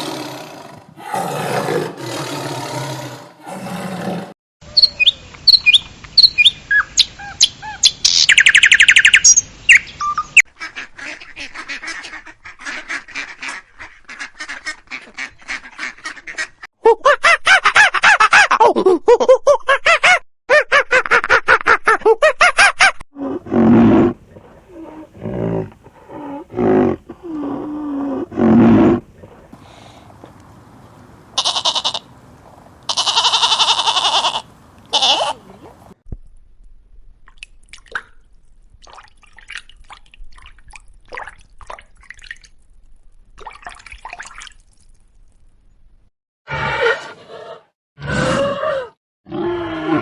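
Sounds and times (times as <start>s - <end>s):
low animal calls: 23.2s - 36.0s
harsh high animal calls: 31.4s - 32.1s, 32.9s - 35.8s.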